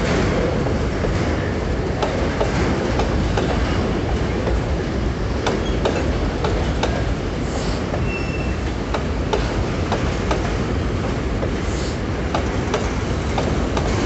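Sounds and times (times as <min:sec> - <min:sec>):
wheels clacking over rail joints: 0:00.0 - 0:14.0
high wheel squeals: 0:08.0 - 0:08.6.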